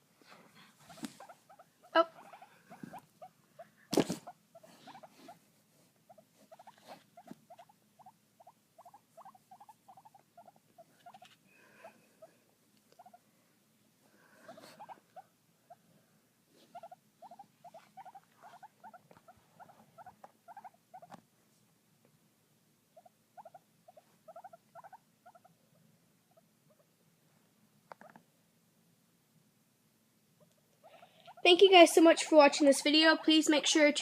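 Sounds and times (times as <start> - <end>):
guinea pig squeaking: 0.8 - 5.4, 6.0 - 13.2, 14.5 - 15.8, 16.6 - 21.2, 22.9 - 26.9, 27.9 - 28.2, 30.4 - 34.0.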